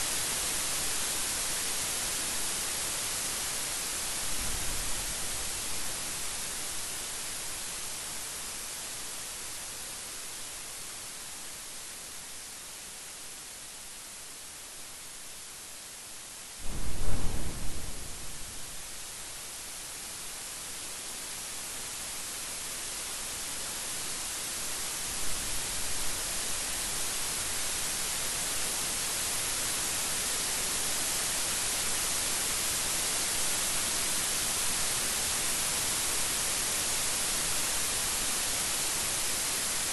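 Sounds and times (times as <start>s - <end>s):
steady rain hiss: 0.0s - 39.9s
thunder rumbling: 16.6s - 19.1s.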